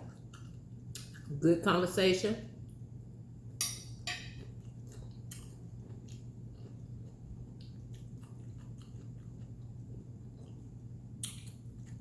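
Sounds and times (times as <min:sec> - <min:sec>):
person chewing food: 0:00.0 - 0:01.3, 0:03.9 - 0:12.0
steady low hum: 0:00.0 - 0:12.0.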